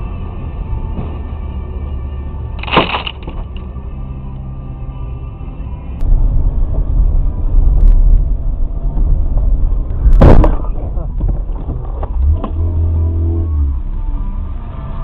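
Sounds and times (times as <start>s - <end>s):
car road noise rumble: 0.0s - 15.0s
steady low tone: 0.0s - 15.0s
loud collision bang: 10.1s - 10.8s.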